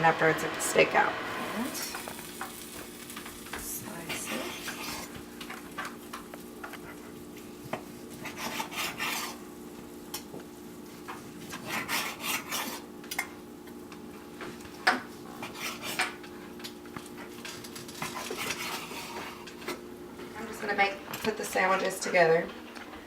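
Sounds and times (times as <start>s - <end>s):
knife sawing through steak: 8.2s - 9.4s, 11.6s - 12.8s, 15.4s - 16.0s.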